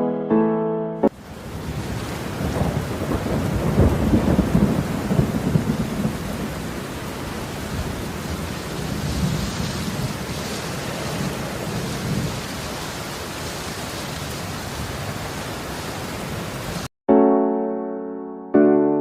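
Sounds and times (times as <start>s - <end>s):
heavy rain: 1.1s - 16.9s
thunder rolling: 1.5s - 6.8s, 7.7s - 12.6s.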